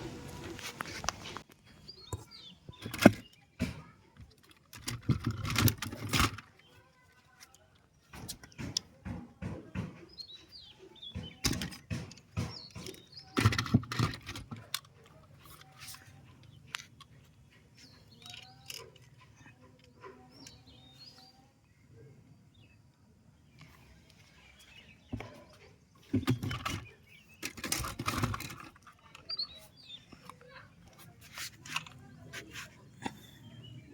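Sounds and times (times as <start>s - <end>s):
sharp clicks and knocks: 7.4s - 10.4s, 11.0s - 15.7s.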